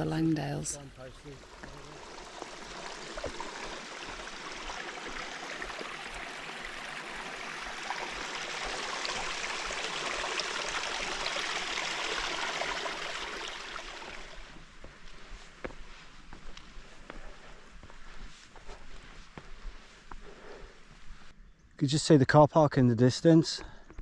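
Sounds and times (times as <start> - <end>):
stream water rushing: 0.0 - 14.6.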